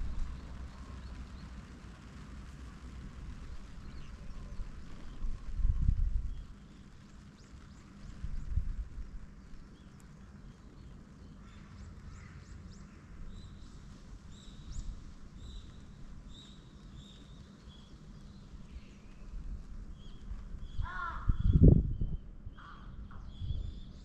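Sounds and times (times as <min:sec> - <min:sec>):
steady low rumble: 0:00.0 - 0:24.0
small birds chirping: 0:03.2 - 0:05.6, 0:06.2 - 0:24.0.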